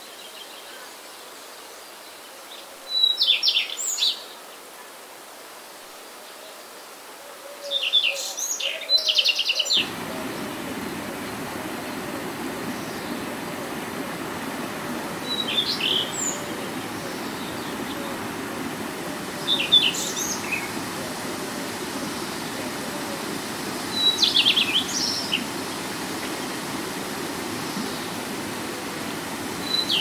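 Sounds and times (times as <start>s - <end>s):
songbird chirping: 7.7s - 30.0s
rocky stream rushing: 9.7s - 30.0s.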